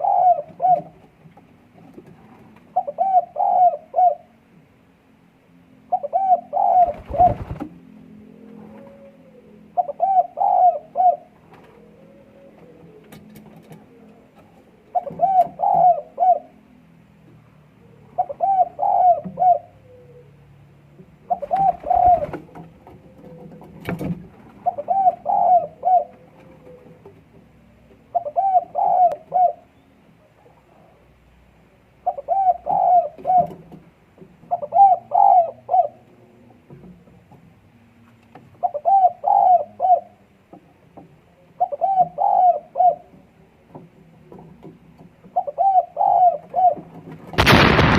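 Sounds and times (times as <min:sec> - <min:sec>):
dove cooing: 0:00.0 - 0:01.2, 0:02.5 - 0:04.4, 0:05.8 - 0:16.8, 0:17.8 - 0:31.2, 0:32.0 - 0:33.8, 0:34.4 - 0:36.6, 0:38.6 - 0:40.3, 0:41.4 - 0:43.7, 0:45.2 - 0:47.1.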